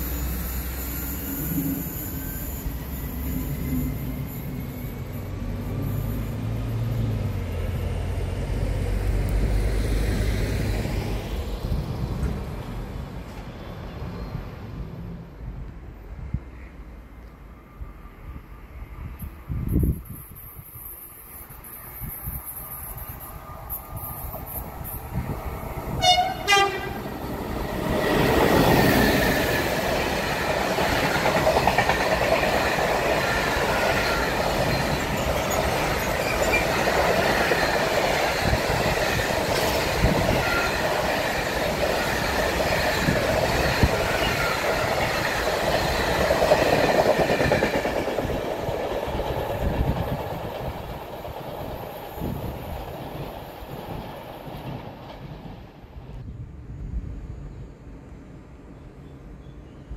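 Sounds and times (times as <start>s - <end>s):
thin high wheel squeal: 0.0s - 7.3s, 33.3s - 38.8s
train wheels clattering: 26.0s - 55.8s.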